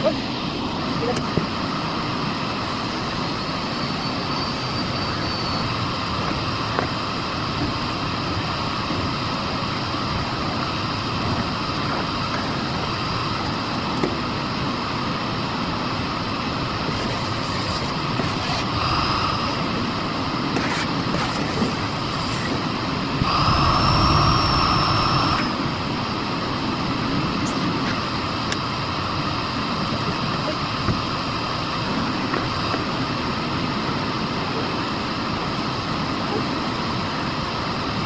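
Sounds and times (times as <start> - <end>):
vacuum cleaner running: 0.0 - 33.2.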